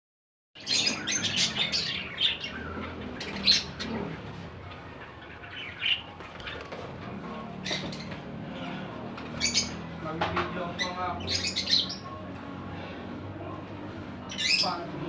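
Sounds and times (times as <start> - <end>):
bird chirps and squawks: 0.6 - 4.3, 7.6 - 9.9, 10.8 - 12.1, 14.2 - 14.8.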